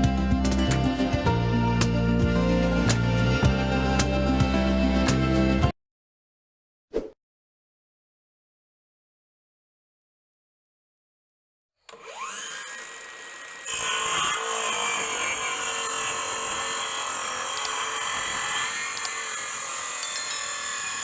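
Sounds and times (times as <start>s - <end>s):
circular saw whining: 0.0s - 5.7s, 11.9s - 21.0s
saw cutting metal: 0.0s - 5.7s, 11.9s - 21.0s.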